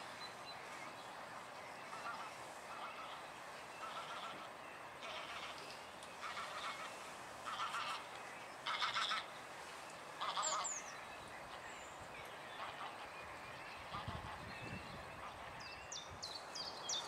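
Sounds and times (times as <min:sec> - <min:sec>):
large birds calling harshly: 0:01.9 - 0:09.4, 0:10.2 - 0:11.6.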